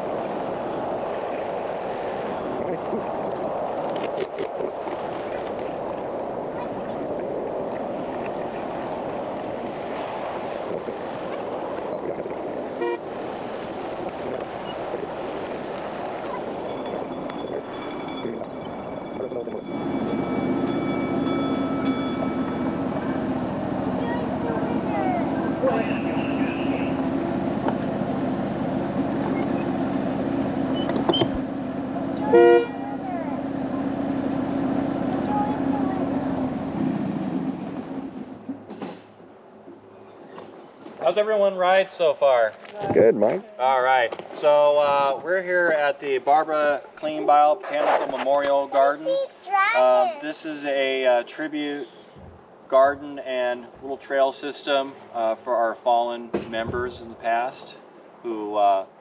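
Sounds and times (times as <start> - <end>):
locomotive toot: 12.8 - 13.2, 16.3 - 27.6, 28.2 - 38.5
thin high tone: 16.2 - 27.0
miniature train droning: 16.6 - 27.1.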